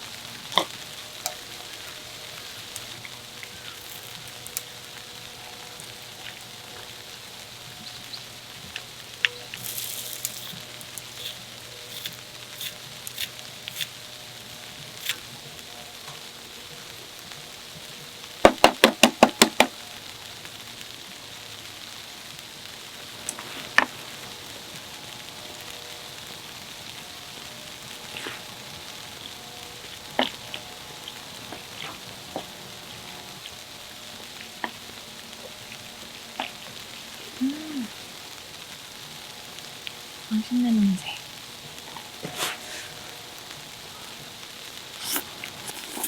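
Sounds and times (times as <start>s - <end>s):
sizzling hiss: 0.0s - 46.0s.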